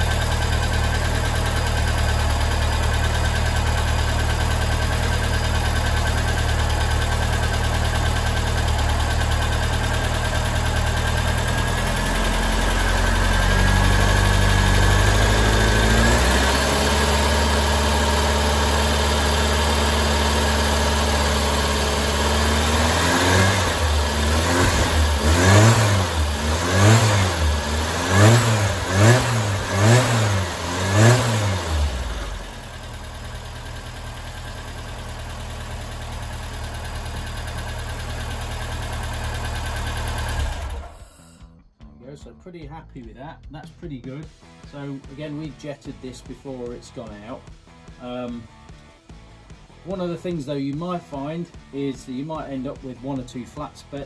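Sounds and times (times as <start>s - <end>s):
car engine idling and revving: 0.0s - 41.4s.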